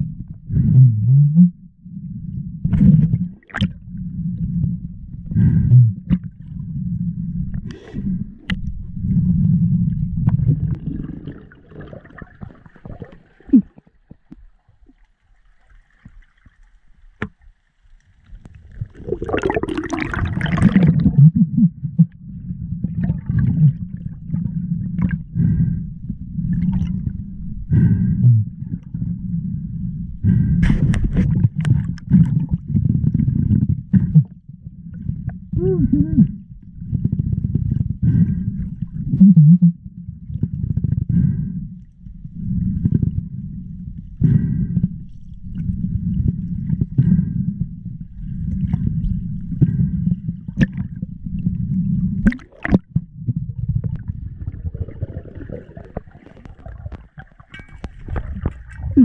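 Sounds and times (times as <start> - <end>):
diver breathing through snorkel: 4.0 - 6.1, 6.7 - 10.1, 24.4 - 26.8, 27.6 - 31.2, 37.3 - 38.8, 41.0 - 50.6
water gurgling: 5.3 - 25.6, 45.4 - 59.0.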